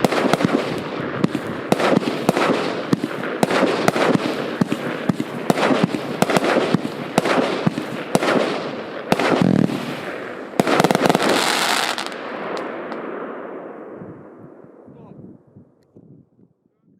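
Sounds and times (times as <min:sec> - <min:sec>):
fireworks cake firing shots: 0:00.0 - 0:13.3.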